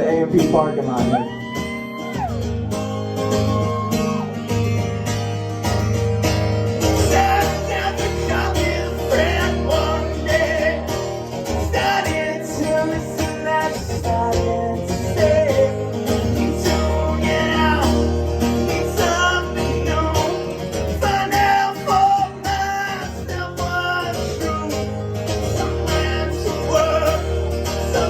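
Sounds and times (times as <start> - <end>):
bass guitar: 0.0 - 28.0
strummed electric guitars: 0.0 - 28.0
person singing: 7.1 - 11.0, 11.6 - 24.9, 25.5 - 28.0.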